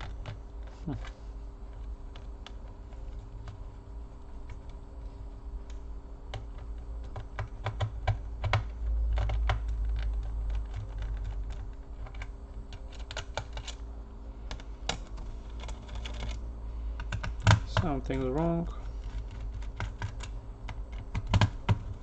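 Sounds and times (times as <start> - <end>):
steady low hum: 0.0 - 22.0
plastic clicks and taps: 19.4 - 22.0.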